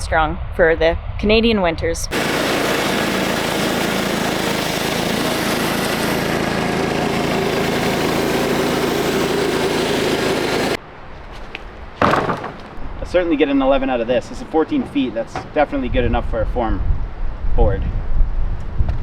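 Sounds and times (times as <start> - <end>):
saw blade cutting log: 2.1 - 10.8
sawmill gas engine running: 2.1 - 10.8.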